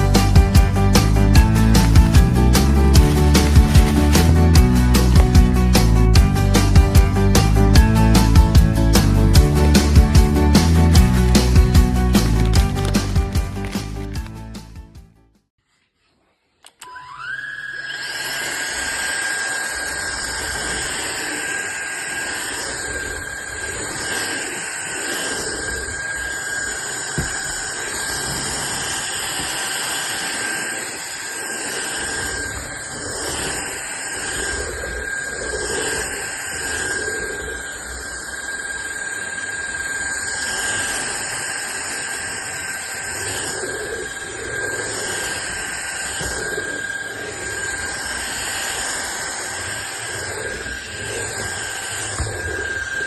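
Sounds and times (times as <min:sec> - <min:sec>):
vacuum cleaner running: 0:01.4 - 0:06.0, 0:17.2 - 0:34.6, 0:40.4 - 0:53.0.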